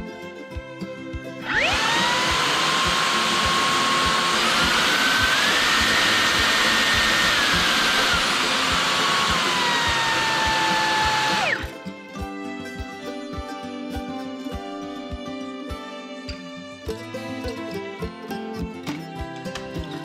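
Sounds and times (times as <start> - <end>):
background music with steady beat: 0.0 - 20.0
vacuum cleaner motor whining: 1.4 - 11.7.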